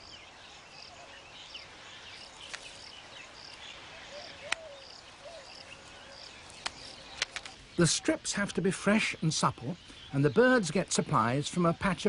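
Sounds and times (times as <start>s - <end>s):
high insect chirp: 0.0s - 8.5s
small birds chirping: 0.0s - 12.0s
sharp clicks: 6.6s - 7.6s.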